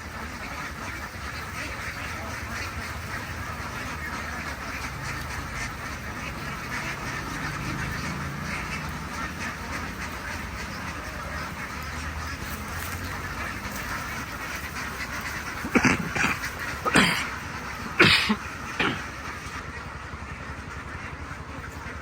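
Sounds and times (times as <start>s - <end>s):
duck flock din: 0.0s - 22.0s
loud short animal calls: 13.2s - 19.6s.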